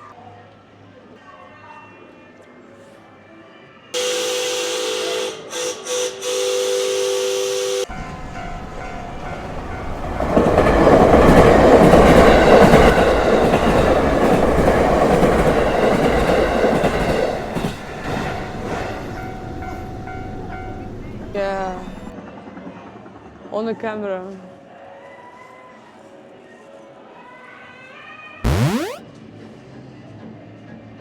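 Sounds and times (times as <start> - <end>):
train two-note whistle: 4.0 - 7.9
train rumble and wheel clatter: 7.9 - 22.1.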